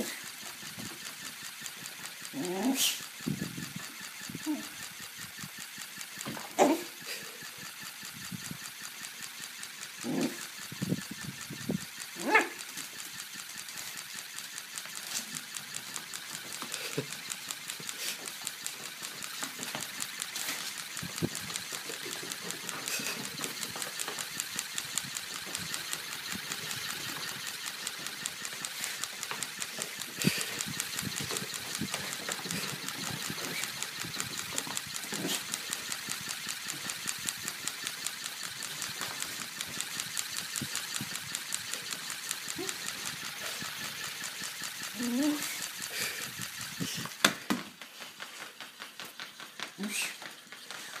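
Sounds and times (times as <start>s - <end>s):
rapid mechanical clatter: 0.0s - 51.0s
puppy barking: 6.6s - 6.9s, 12.2s - 12.6s.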